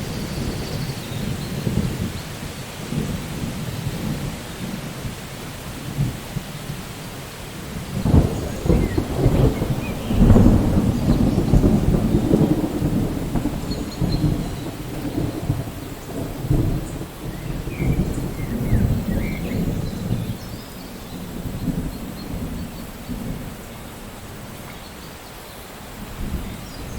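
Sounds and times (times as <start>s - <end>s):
steady rain: 0.0s - 26.9s
thunder rolling: 7.6s - 24.0s.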